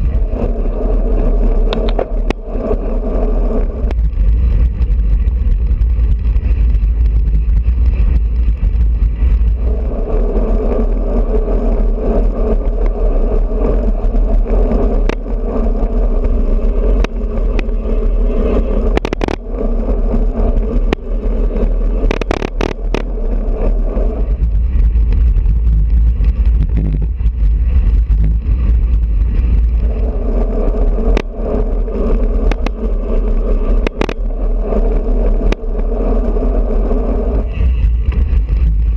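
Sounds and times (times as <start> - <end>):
road and tyre noise: 0.0 - 38.9
wind rushing over microphone: 0.0 - 38.9
sharp clicks and knocks: 1.7 - 2.5, 15.0 - 15.4, 17.0 - 17.8, 18.9 - 19.5, 22.0 - 23.2, 24.7 - 28.4, 31.1 - 31.4, 32.4 - 32.8, 33.7 - 34.3, 34.9 - 35.8.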